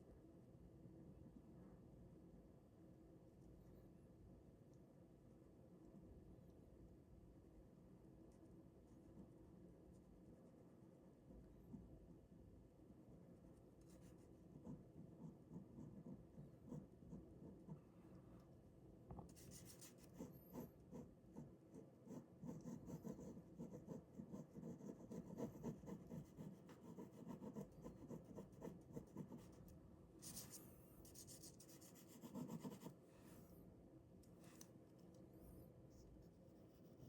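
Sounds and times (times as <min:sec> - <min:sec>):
pen scratching on paper: 0:19.3 - 0:29.6, 0:30.2 - 0:33.0.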